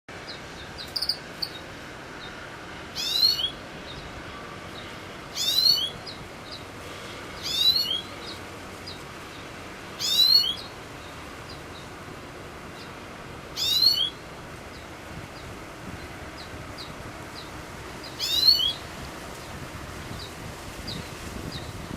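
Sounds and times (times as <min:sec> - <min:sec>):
faint high bird call notes: 0:00.3 - 0:11.9, 0:12.8 - 0:15.5, 0:16.4 - 0:18.9
songbird singing falling notes: 0:05.4 - 0:06.6, 0:07.4 - 0:10.7, 0:13.6 - 0:14.2, 0:16.4 - 0:18.8.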